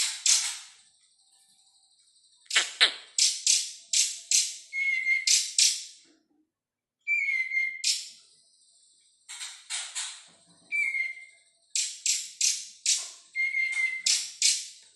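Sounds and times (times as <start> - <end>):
songbird chirping and whistling: 0.0 - 6.0, 7.0 - 9.1, 10.2 - 14.9.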